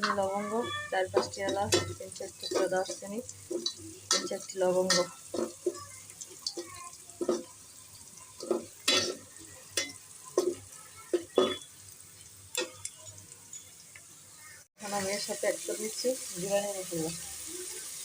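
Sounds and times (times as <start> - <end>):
spoon stirring and scraping pot: 0.0 - 13.7
light sizzle of frying: 0.0 - 18.0.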